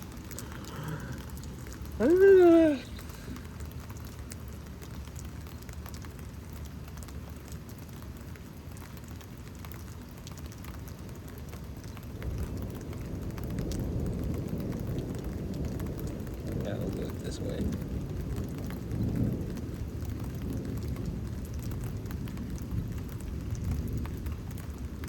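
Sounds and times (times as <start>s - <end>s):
rain pattering: 0.0s - 25.0s
low thunder rumble: 12.0s - 25.0s.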